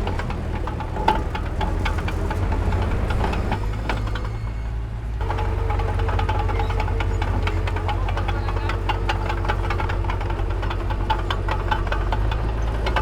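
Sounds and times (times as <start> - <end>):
diesel machinery engine rumble: 0.0 - 13.0.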